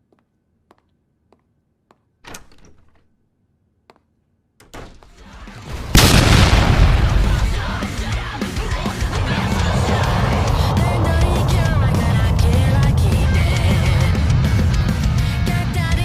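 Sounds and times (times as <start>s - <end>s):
short crash: 5.7s - 16.0s
loud roar: 6.0s - 15.8s.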